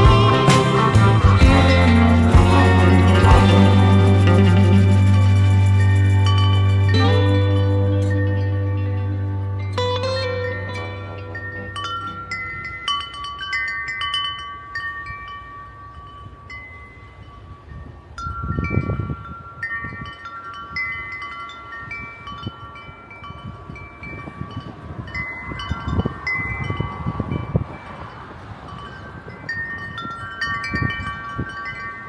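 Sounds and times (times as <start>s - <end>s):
wind chimes ringing: 0.0s - 32.0s
wind rumbling on microphone: 23.3s - 32.0s.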